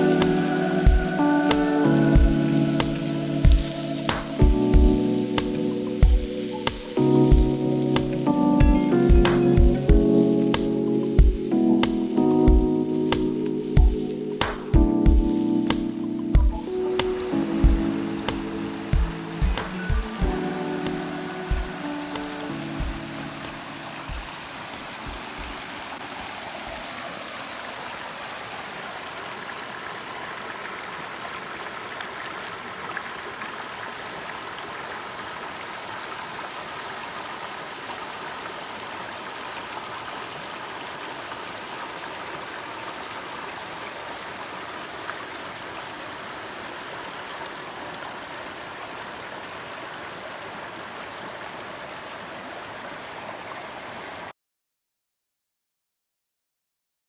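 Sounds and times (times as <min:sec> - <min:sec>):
background music: 0:00.0 - 0:25.9
rushing water noise: 0:00.0 - 0:54.3.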